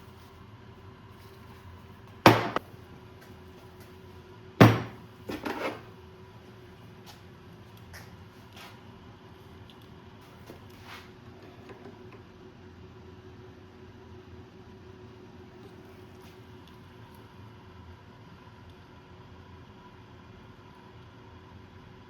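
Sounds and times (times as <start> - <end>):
sharp knocks: 2.3 - 2.6, 4.6 - 5.0.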